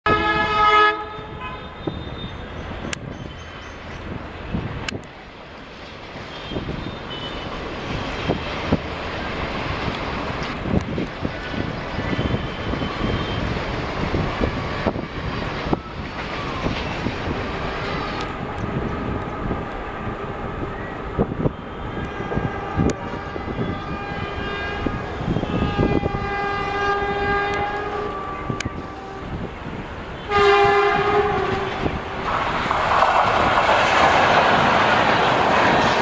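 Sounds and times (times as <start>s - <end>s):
locomotive horn: 0.1s - 2.4s, 6.3s - 7.5s, 21.4s - 29.5s, 30.2s - 32.2s
train wheels rumbling on track: 0.1s - 36.0s
wheels clicking over rail joints: 31.1s - 36.0s.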